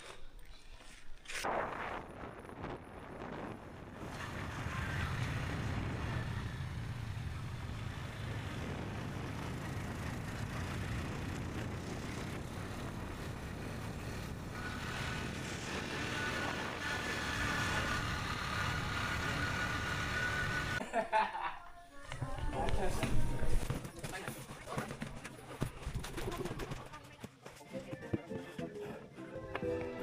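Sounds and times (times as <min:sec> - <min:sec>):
road and air noise: 0:02.2 - 0:20.8.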